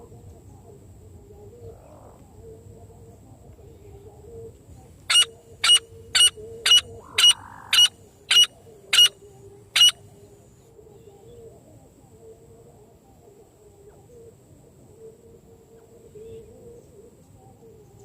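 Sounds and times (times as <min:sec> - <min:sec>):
francolin calling harsh notes: 0:05.1 - 0:09.1, 0:09.8 - 0:10.0.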